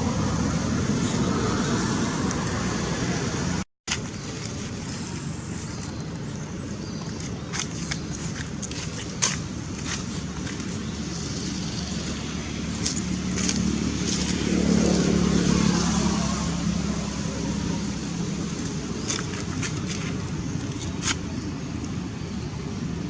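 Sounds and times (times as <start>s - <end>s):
motor vehicle engine passing: 0.0s - 3.6s, 6.8s - 21.2s.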